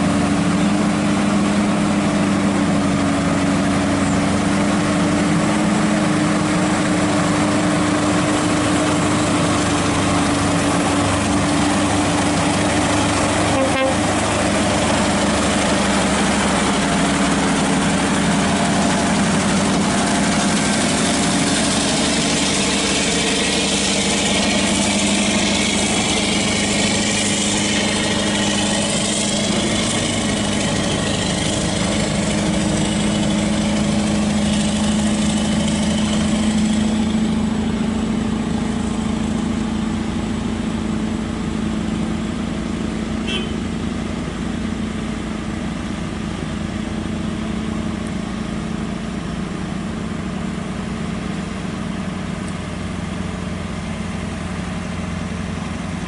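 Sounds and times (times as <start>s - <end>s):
rising and falling whines: 0.0s - 42.8s
large engine idling: 0.0s - 56.0s.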